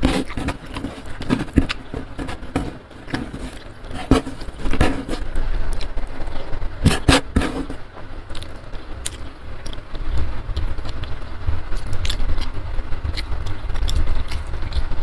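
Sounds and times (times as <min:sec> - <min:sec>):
steady low rumble: 0:00.0 - 0:15.0
chewing and lip smacks: 0:05.7 - 0:06.5, 0:08.3 - 0:15.0.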